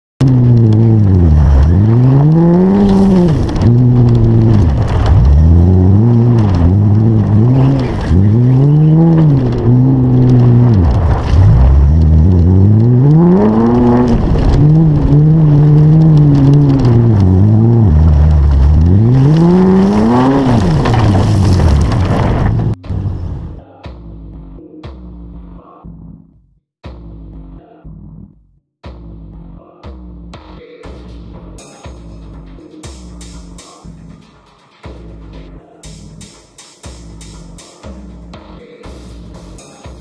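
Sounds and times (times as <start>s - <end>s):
car engine revving loudly: 0.2s - 21.3s.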